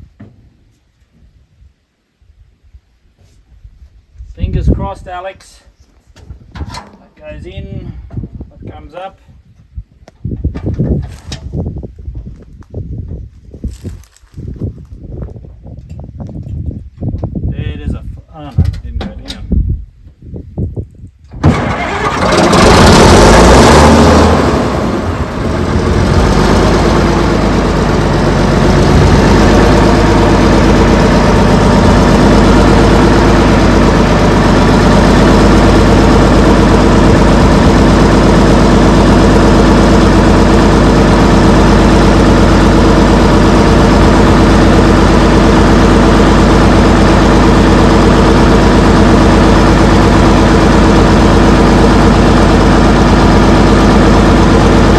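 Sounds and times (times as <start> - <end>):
bulldozer diesel engine starting: 21.3 - 54.9.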